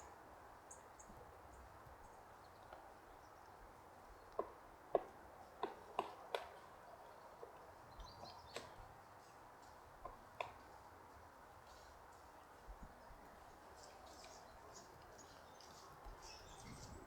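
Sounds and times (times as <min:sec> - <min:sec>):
woodpecker knocking on wood: 0:04.3 - 0:06.7, 0:10.0 - 0:10.7.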